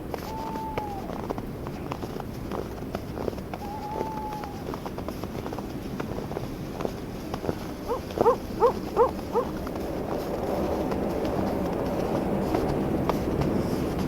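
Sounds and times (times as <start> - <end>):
wind: 0.0 - 14.0
footsteps crunching on snow: 0.1 - 14.0
animal calls: 3.6 - 4.7, 7.8 - 9.6.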